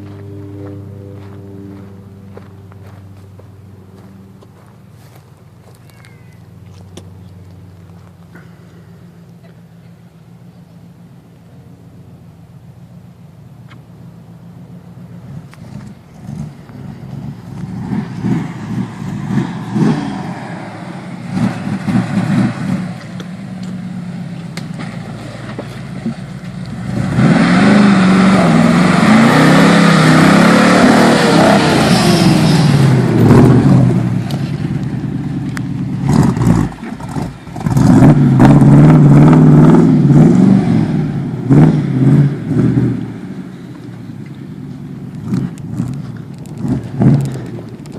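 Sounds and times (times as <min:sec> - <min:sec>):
truck engine revving: 0:14.9 - 0:47.9.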